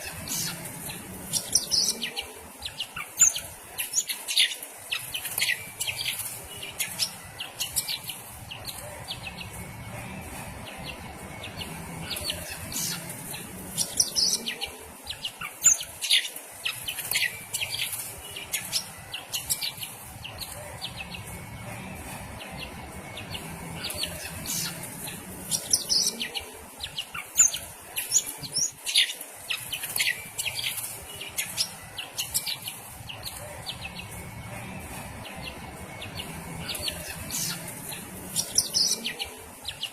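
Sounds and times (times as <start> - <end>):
bird singing high chirps: 10.7 - 21.3.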